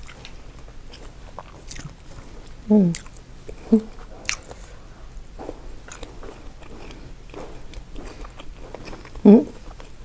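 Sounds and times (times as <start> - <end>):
biting and chewing mouth sounds: 0.0 - 10.0
person humming mm: 2.6 - 4.0, 9.2 - 9.6.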